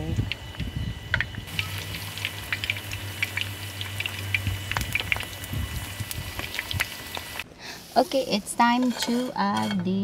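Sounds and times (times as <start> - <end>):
low steady hum: 0.0 - 10.0
oil crackling and popping: 1.2 - 7.4
eggplant sizzling in oil: 1.5 - 8.6.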